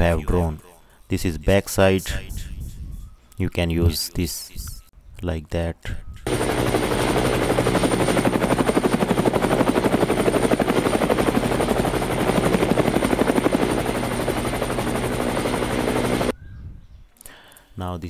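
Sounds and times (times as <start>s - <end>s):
helicopter rotor blades beating: 6.2s - 16.3s
helicopter engine drone: 6.3s - 16.3s
high turbine whine: 6.3s - 16.3s.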